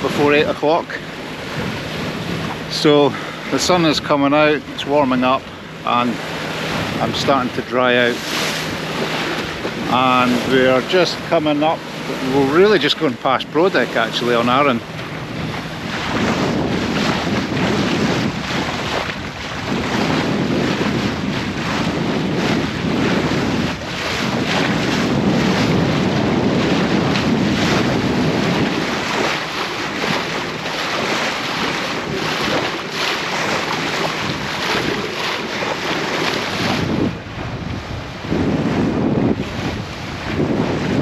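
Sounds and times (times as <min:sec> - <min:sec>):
water rushing past hull: 0:00.0 - 0:41.0
wind buffeting microphone: 0:00.0 - 0:41.0.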